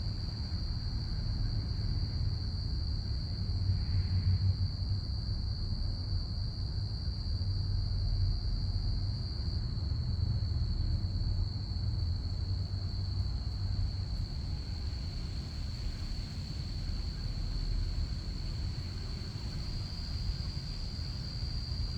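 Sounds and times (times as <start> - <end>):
crickets chirring: 11.1 - 21.9.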